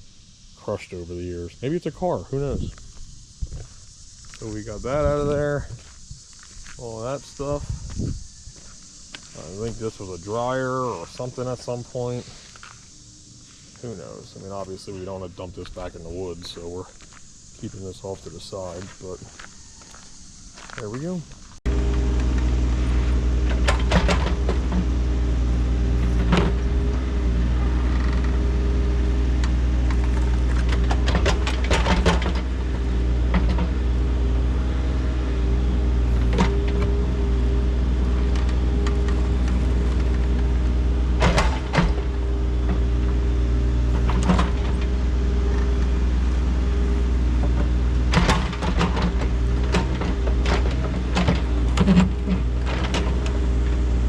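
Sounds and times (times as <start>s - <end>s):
earthmoving machine engine running: 21.6s - 54.0s.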